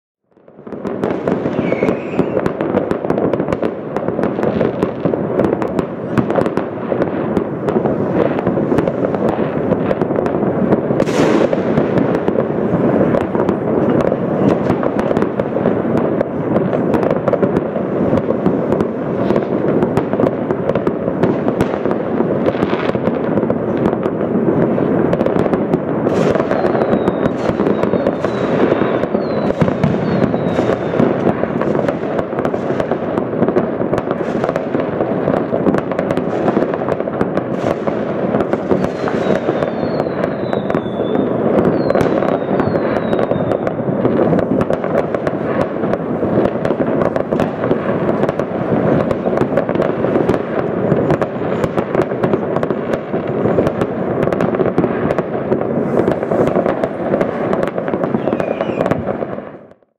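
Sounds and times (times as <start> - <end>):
fireworks rumble of bangs: 0.3 - 59.9
sharp firework cracks: 0.4 - 59.9
falling firework whistles: 0.9 - 2.9, 11.0 - 13.6, 26.0 - 32.9, 37.5 - 44.5, 55.8 - 59.9.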